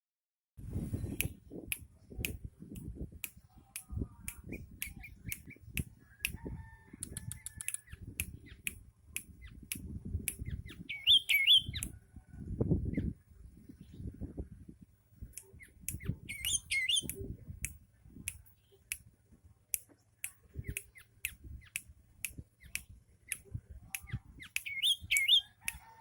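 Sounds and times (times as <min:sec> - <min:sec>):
bird sharp clicks: 0:01.2 - 0:06.4, 0:07.0 - 0:11.9, 0:19.8 - 0:25.8
bird chirping phrase: 0:10.5 - 0:11.8, 0:15.6 - 0:17.1, 0:24.4 - 0:25.5
faint whistled bird notes: 0:10.5 - 0:11.9, 0:15.6 - 0:17.2, 0:24.1 - 0:25.6.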